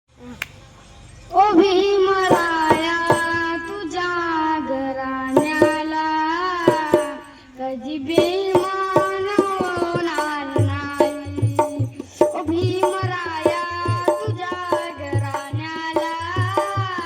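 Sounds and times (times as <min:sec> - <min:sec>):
low drum beat: 0:08.2 - 0:17.0.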